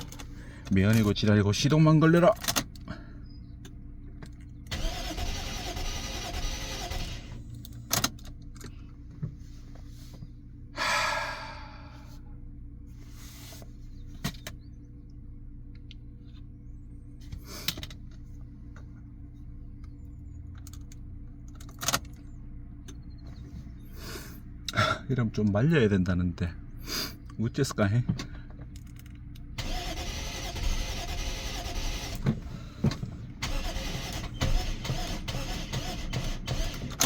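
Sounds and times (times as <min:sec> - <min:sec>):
car engine cranking and running: 0:00.0 - 0:09.8, 0:20.1 - 0:23.7, 0:27.1 - 0:37.0.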